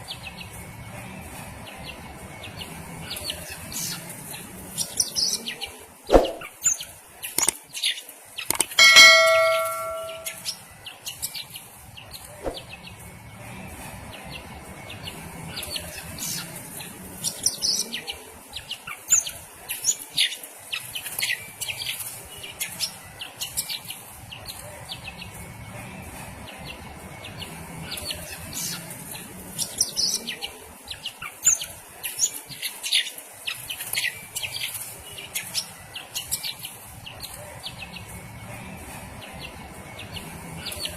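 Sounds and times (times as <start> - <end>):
loud bell-like ring: 8.8 - 10.4
bird chirping in high calls: 8.8 - 10.5.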